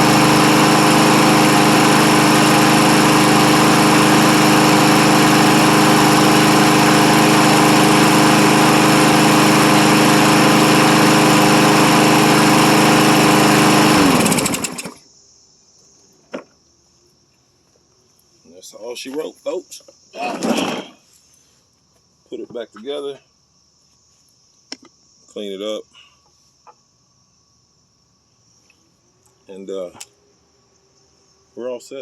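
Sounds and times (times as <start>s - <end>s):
lawn mower engine running: 0.0s - 15.0s, 20.2s - 21.0s.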